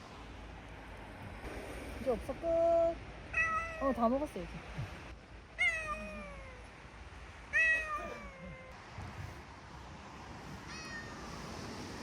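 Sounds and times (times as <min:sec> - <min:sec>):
cat meowing: 0:03.4 - 0:04.0, 0:05.6 - 0:06.6, 0:07.5 - 0:08.8, 0:10.6 - 0:11.4.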